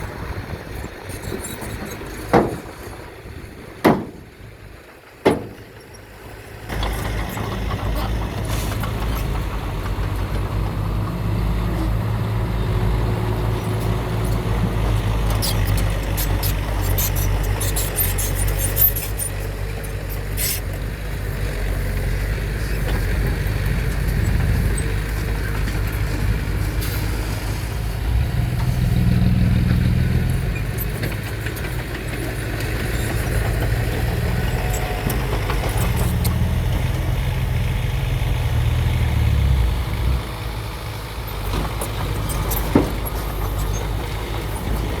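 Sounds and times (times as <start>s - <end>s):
model trucks engine rumble: 0.0s - 45.0s.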